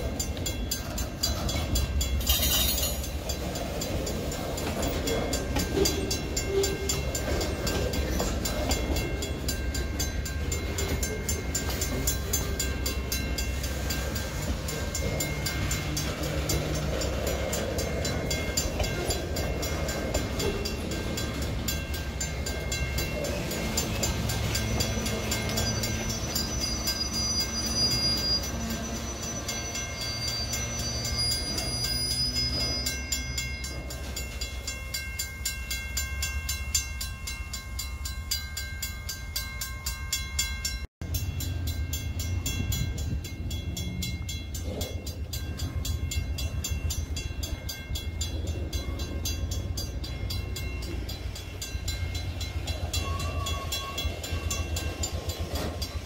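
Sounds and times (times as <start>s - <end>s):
train wheels rumbling on rail: 0.0s - 56.0s
high-pitched wheel squeal: 23.4s - 33.3s.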